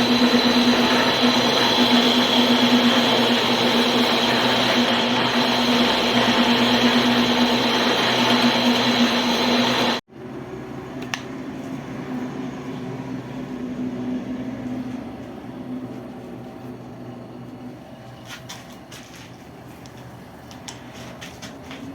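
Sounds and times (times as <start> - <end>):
power tool whirring: 0.0 - 10.0.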